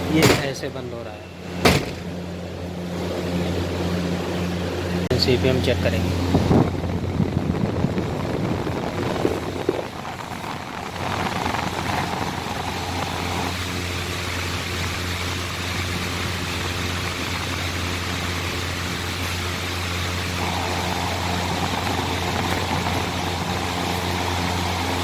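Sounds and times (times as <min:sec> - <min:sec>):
handling knocks: 0:00.0 - 0:00.7, 0:01.6 - 0:02.3
exhaust fans humming: 0:00.0 - 0:25.0.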